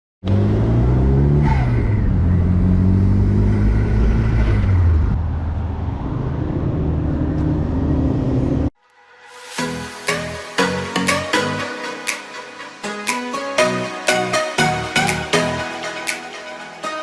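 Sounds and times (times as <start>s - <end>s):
car engine revving: 0.2s - 8.7s.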